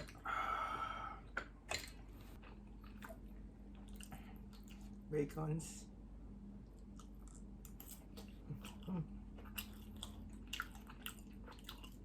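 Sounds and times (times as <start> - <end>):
faint background hum: 0.0 - 12.0
wet chewing clicks and smacks: 6.7 - 12.0
person humming low: 8.8 - 9.2.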